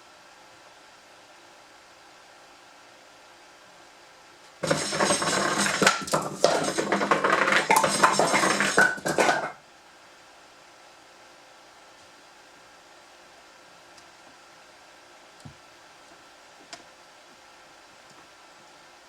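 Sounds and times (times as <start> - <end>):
firewood tumbling down a pipe: 4.6 - 9.6.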